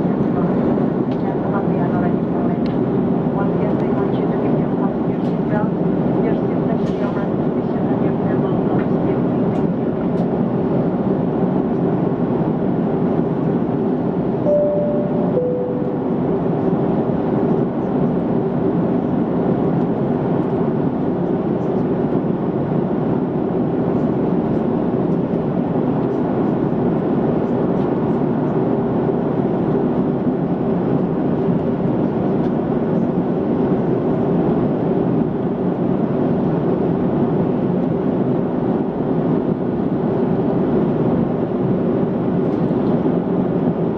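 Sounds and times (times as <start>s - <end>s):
airplane cabin drone: 0.0s - 43.9s
two-tone cabin chime: 14.5s - 16.5s.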